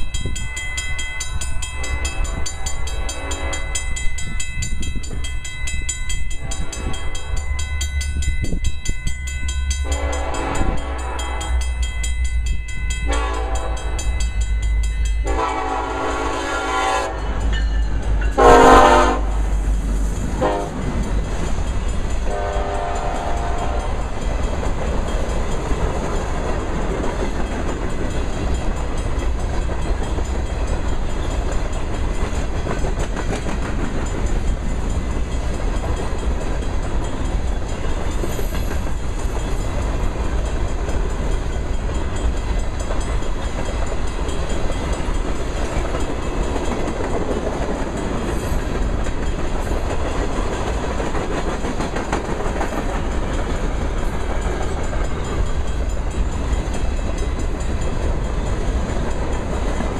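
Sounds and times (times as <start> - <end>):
train wheels clattering on rail: 0.0 - 59.9
locomotive horn blasts: 1.8 - 3.8, 6.4 - 7.3, 9.8 - 11.7, 13.1 - 14.1, 15.2 - 17.6, 18.3 - 19.4, 20.4 - 20.8, 22.2 - 24.0.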